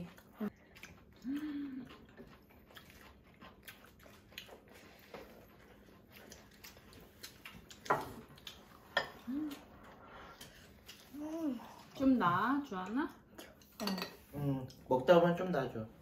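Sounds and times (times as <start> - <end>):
people chewing: 0.0 - 15.4
hummed mm: 1.2 - 2.1, 9.2 - 10.4.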